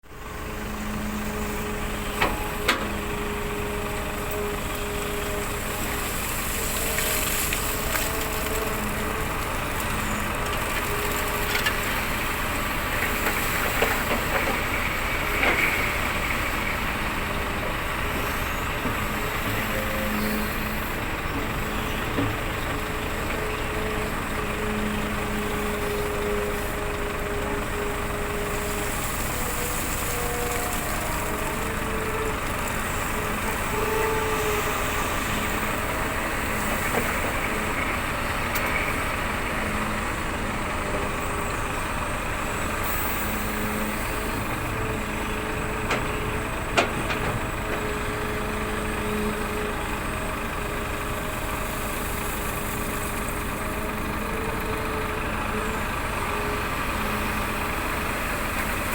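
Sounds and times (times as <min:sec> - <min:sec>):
excavator diesel engine running: 0:00.0 - 0:58.9.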